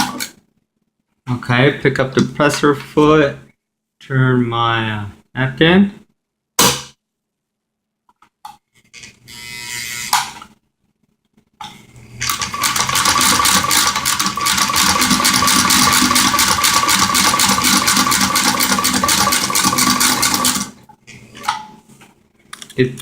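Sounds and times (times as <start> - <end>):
sewing machine running: 12.2 - 20.8.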